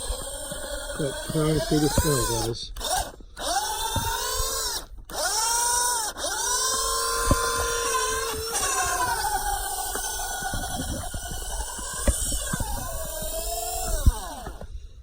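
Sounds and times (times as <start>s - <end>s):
toy truck electric motor whining: 0.0s - 15.0s.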